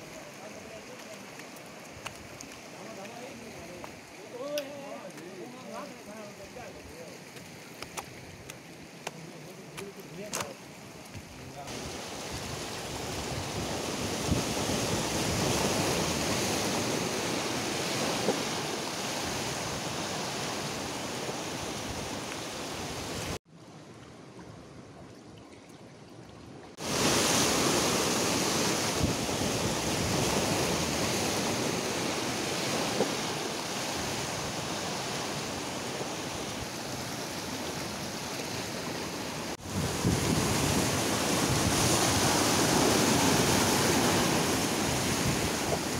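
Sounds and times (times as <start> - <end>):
surf breaking on rocks: 11.6 - 23.4, 26.8 - 45.9.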